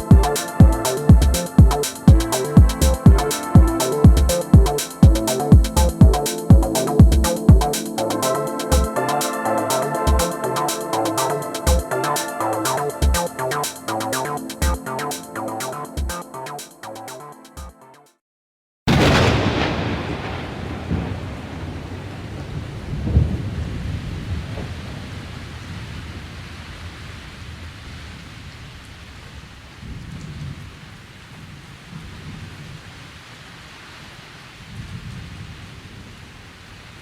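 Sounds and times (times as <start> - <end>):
steady rain: 0.0 - 16.5, 18.9 - 37.0
thunder rumbling: 18.9 - 25.2.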